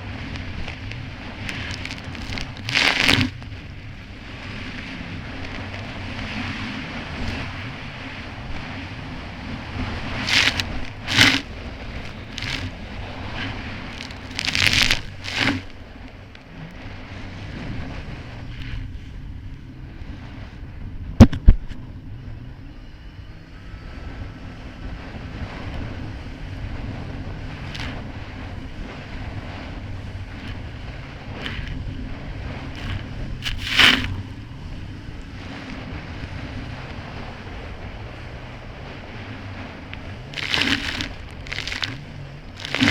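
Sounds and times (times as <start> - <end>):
hull slapping water: 0.0 - 17.6, 26.7 - 34.4, 35.2 - 42.9
wind noise on microphone: 0.0 - 23.0, 23.6 - 42.9
splashing spray: 1.5 - 3.3, 10.2 - 11.4, 12.0 - 12.8, 13.9 - 15.7, 32.8 - 34.2, 40.4 - 42.0, 42.6 - 42.9
jet ski engine running: 21.8 - 42.9.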